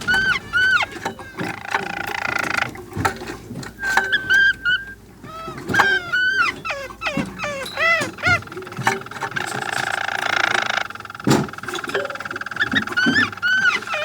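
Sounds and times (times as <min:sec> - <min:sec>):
dog whining and whimpering: 0:00.0 - 0:02.7, 0:03.8 - 0:10.8, 0:12.6 - 0:14.0.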